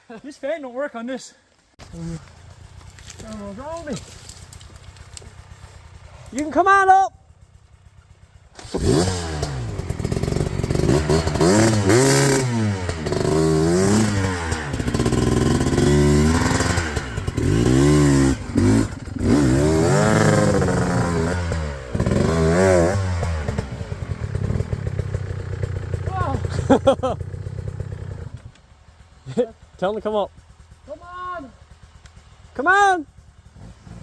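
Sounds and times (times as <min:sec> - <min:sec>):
dirt bike engine revving: 0:08.0 - 0:28.4, 0:33.4 - 0:34.0.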